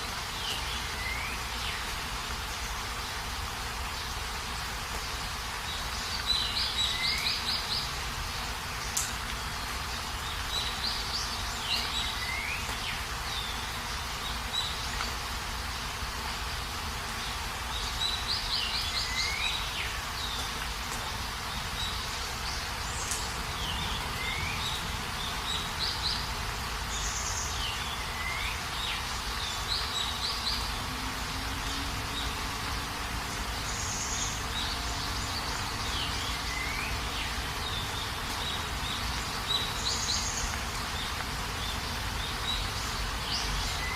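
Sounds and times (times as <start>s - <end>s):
steady rain falling: 0.0s - 43.9s
bird singing trill: 33.5s - 43.9s.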